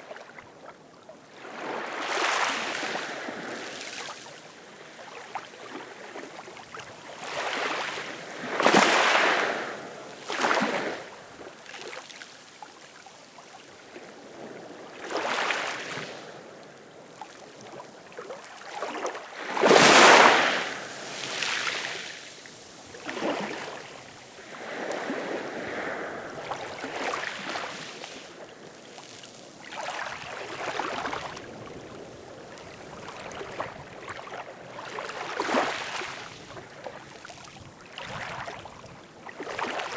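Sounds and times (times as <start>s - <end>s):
ocean waves breaking: 18.9s - 32.3s.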